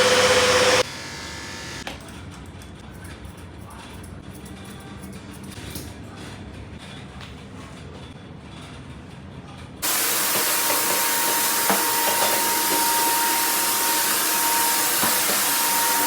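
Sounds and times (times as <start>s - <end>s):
blow dryer blowing air: 0.0s - 1.8s, 9.8s - 16.0s.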